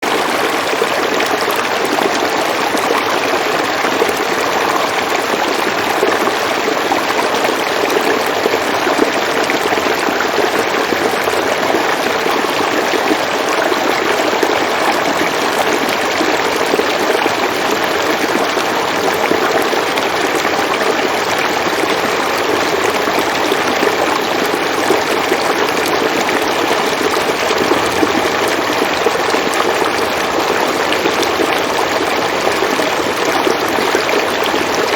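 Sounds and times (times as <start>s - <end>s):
river water flowing: 0.0s - 34.9s.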